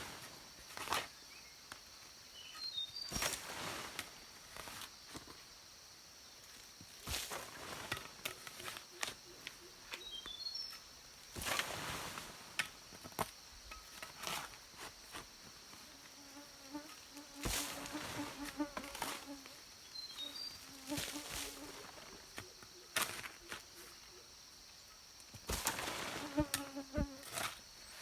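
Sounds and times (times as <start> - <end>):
high-pitched insect chorus: 12.8 - 28.0
fly buzzing: 15.9 - 19.6, 20.2 - 22.2, 26.0 - 27.3.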